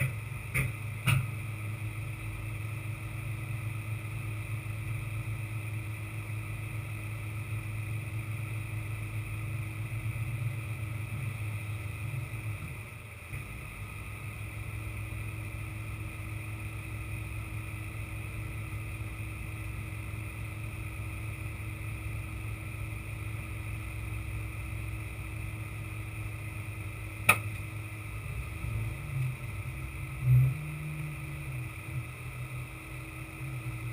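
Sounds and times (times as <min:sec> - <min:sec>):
diesel engine running: 0:00.0 - 0:33.9
engine whine: 0:00.0 - 0:33.9
sharp click: 0:27.3 - 0:27.6.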